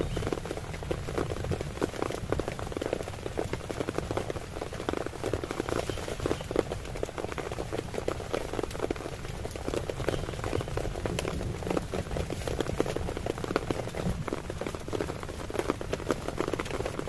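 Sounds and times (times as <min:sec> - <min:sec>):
heavy rain on a tent: 0:00.0 - 0:17.0.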